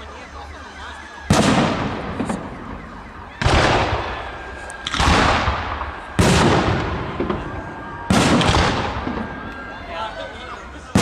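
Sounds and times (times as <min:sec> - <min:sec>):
fireworks booming: 0:01.2 - 0:09.6.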